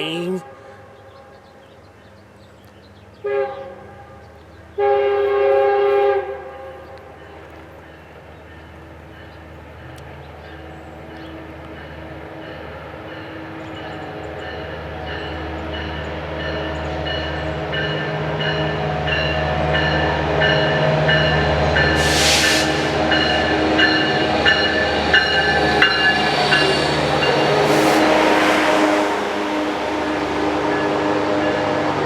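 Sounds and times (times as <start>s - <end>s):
diesel locomotive humming: 21.0s - 32.0s
air hissing: 22.0s - 31.0s
train bell ringing: 23.1s - 29.3s.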